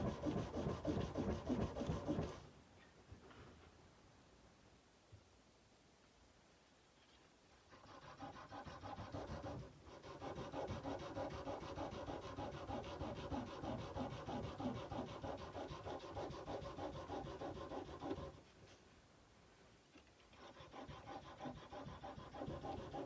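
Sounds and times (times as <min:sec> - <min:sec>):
sandpaper on steel blade: 0:00.0 - 0:02.4, 0:07.7 - 0:18.5, 0:20.3 - 0:23.0.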